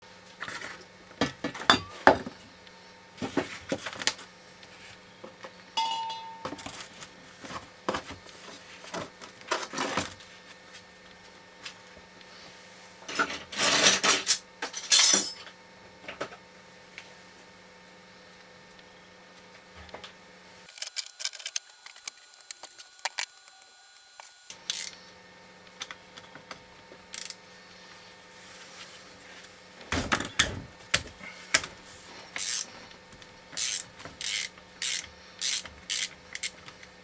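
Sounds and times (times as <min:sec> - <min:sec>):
metal tools clinking and knocking: 0:14.8 - 0:15.5.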